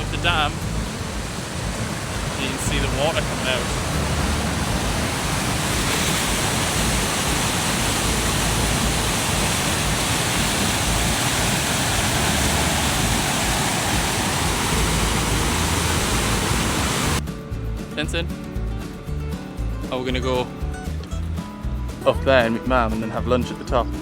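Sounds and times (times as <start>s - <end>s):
water rushing from dam: 0.0s - 17.2s.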